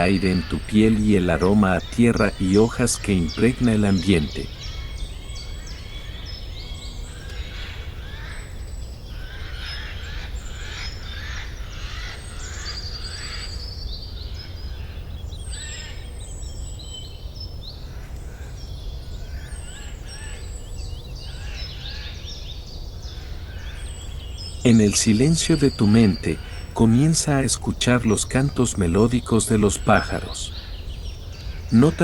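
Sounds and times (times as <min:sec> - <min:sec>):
birds singing: 0:00.0 - 0:32.0.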